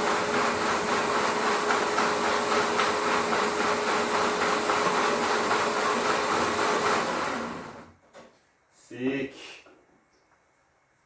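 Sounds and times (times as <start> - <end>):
rotary hammer drill running: 0.0 - 7.9.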